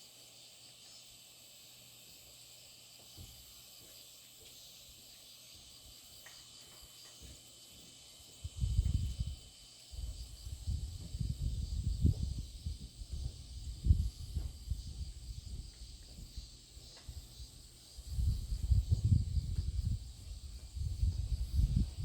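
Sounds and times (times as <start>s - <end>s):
insects chirring: 0.0s - 22.0s
low rumbling on microphone: 10.0s - 16.5s, 18.0s - 22.0s.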